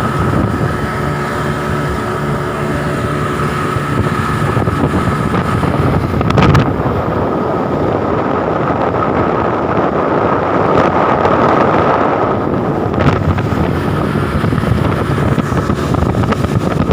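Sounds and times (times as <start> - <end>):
motorboat engine: 0.0 - 16.9
water rushing past: 0.0 - 16.9
wind buffeting microphone: 0.0 - 16.9.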